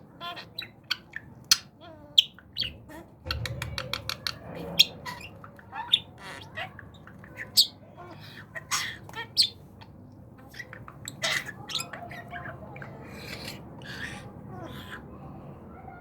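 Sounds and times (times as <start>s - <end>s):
budgerigar chirping: 0.2s - 3.6s, 4.2s - 15.0s
budgerigar squawks: 4.7s - 9.6s, 10.4s - 15.0s.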